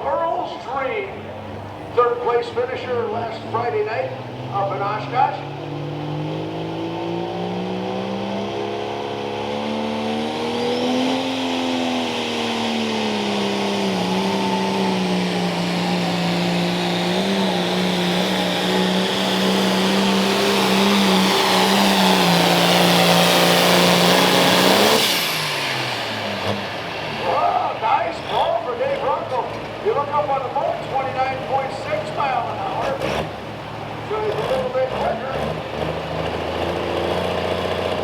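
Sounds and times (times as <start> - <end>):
tractor engine at full throttle: 0.0 - 38.0.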